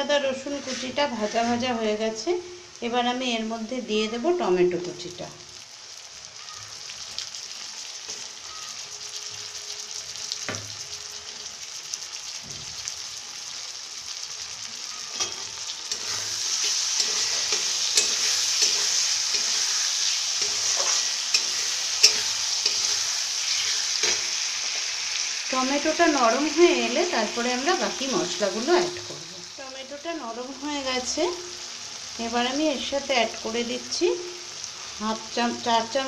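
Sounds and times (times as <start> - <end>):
tomatoes sizzling in oil: 0.0 - 36.0
metal spatula scraping pan: 0.4 - 1.7, 15.0 - 25.0.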